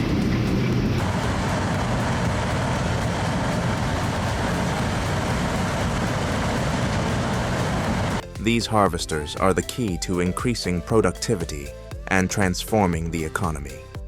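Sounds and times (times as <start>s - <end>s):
harvesting machinery running: 0.0s - 8.5s.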